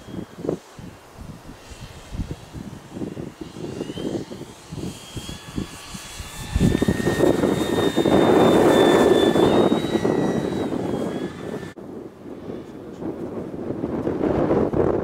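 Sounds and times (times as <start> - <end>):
model plane motor whine: 0.0 - 11.8
wind buffeting microphone: 0.0 - 15.0.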